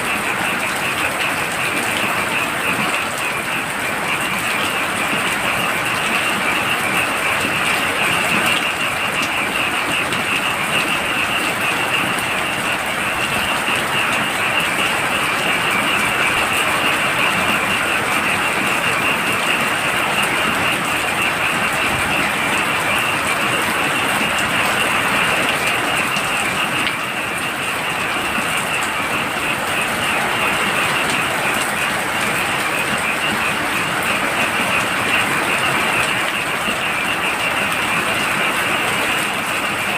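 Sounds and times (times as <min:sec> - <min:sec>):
frogs trilling: 0:00.0 - 0:39.9
heavy rain: 0:00.0 - 0:39.9.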